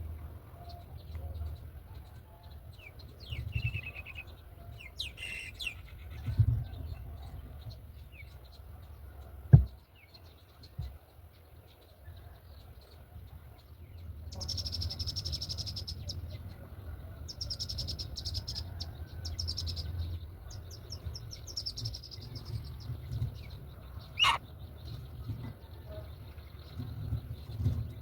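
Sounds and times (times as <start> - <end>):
birds chirping: 0.6 - 6.2, 17.5 - 28.0
wind on microphone: 6.2 - 7.6
sharp thump: 9.5 - 9.8.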